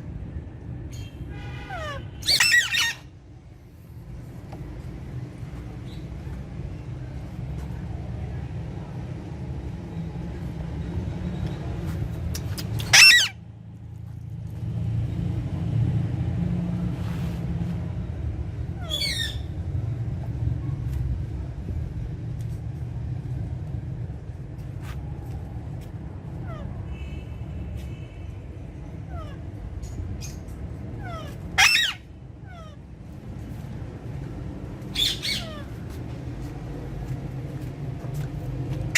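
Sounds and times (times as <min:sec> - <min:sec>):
parakeets squawking: 0:01.6 - 0:03.1, 0:12.8 - 0:13.4, 0:18.8 - 0:19.5, 0:29.1 - 0:32.8, 0:34.9 - 0:35.8
parrot screeching: 0:01.6 - 0:03.1, 0:12.8 - 0:13.4, 0:18.8 - 0:19.5, 0:29.1 - 0:29.4, 0:31.0 - 0:32.8, 0:34.9 - 0:35.7
steady low rumble: 0:03.0 - 0:38.9.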